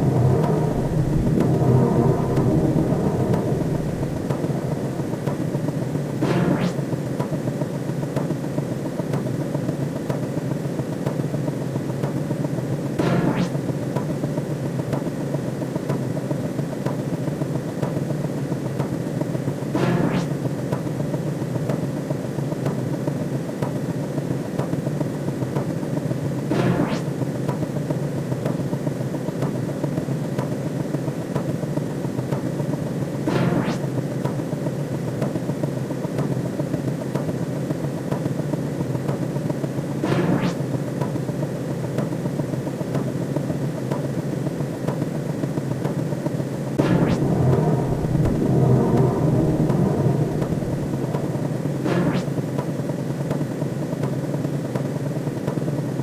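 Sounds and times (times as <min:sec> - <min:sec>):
upward sweeping whoosh: 0:00.0 - 0:07.0, 0:46.8 - 0:52.6
low electronic drone: 0:00.0 - 0:07.3, 0:13.0 - 0:13.8, 0:33.2 - 0:34.2, 0:40.0 - 0:40.9, 0:46.8 - 0:53.1.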